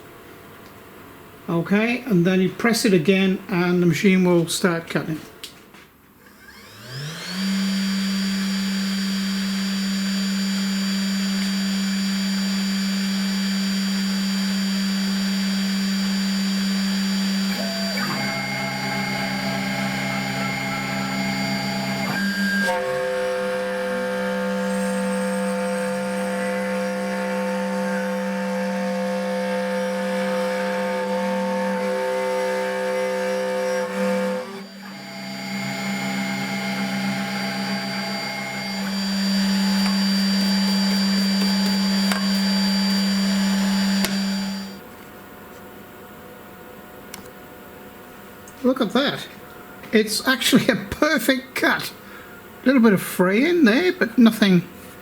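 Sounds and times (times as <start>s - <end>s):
stepper motors whining: 6.3s - 28.2s, 30.9s - 44.8s
router spindle humming: 6.3s - 44.8s.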